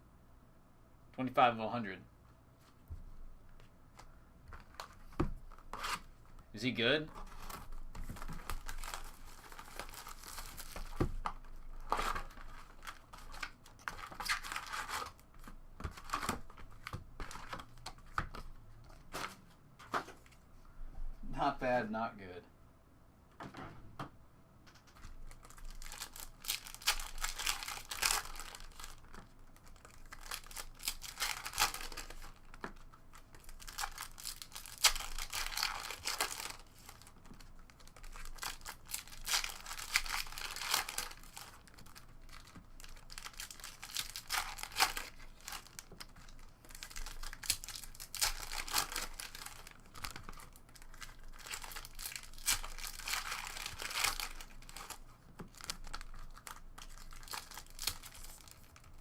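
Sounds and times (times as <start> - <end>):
foil wrappers crinkling and tearing: 6.7 - 15.2, 25.0 - 59.0.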